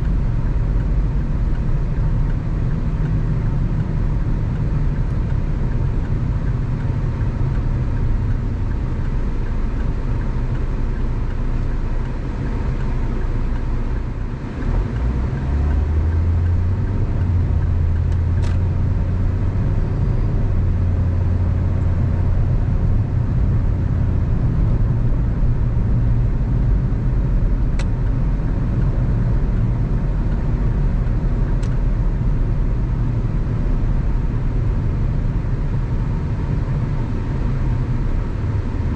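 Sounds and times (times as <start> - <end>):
car engine drone: 0.0 - 38.9
tyre and road noise: 0.0 - 38.9.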